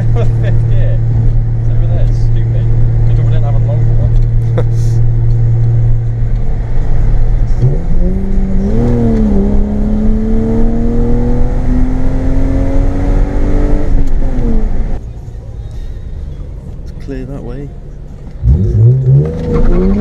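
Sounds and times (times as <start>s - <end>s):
car engine revving: 0.0s - 15.0s, 17.9s - 20.0s.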